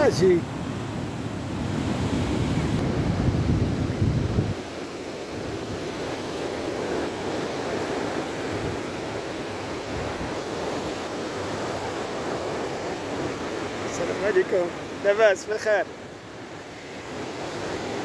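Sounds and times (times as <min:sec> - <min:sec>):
wind buffeting microphone: 0:00.0 - 0:14.0
sea surf breaking: 0:00.0 - 0:18.0.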